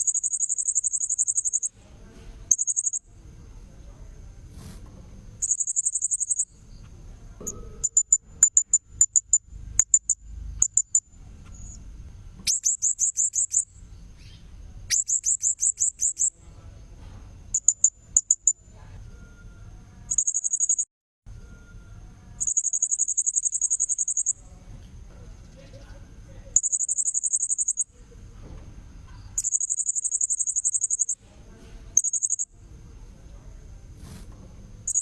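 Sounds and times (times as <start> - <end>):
high-pitched parrot chirps: 0.0 - 1.7, 2.5 - 3.0, 5.4 - 6.5, 12.5 - 16.3, 20.1 - 20.9, 22.4 - 24.4, 26.6 - 27.8, 29.4 - 31.2, 32.0 - 32.5.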